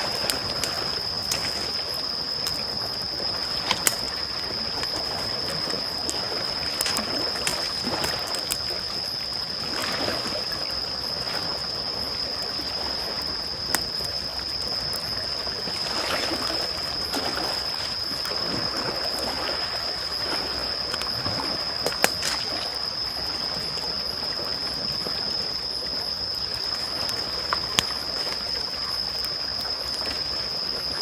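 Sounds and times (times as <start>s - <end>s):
waves lapping: 0.0s - 12.2s, 15.5s - 25.3s
campfire crackling: 0.0s - 22.8s, 26.1s - 30.4s.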